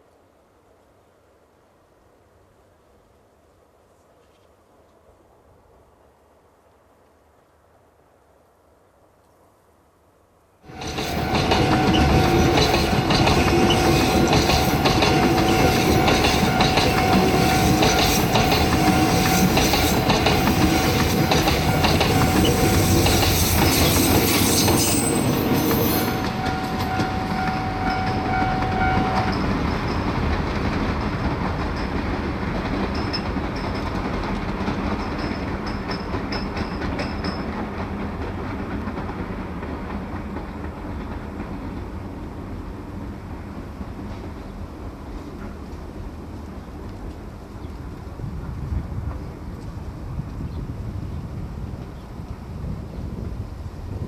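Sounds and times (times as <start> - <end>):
train wheels clattering: 10.7 - 42.1
steady high-pitched tone: 24.0 - 30.0.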